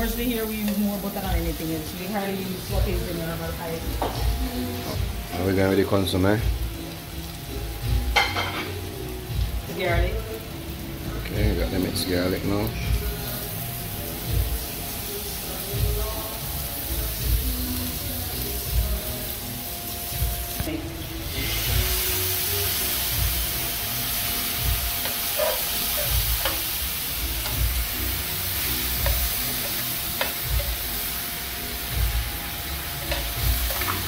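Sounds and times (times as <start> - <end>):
food sizzling in a frying pan: 0.0 - 34.0
metal tongs clicking on pan: 26.4 - 26.7, 29.0 - 30.8, 33.1 - 34.0.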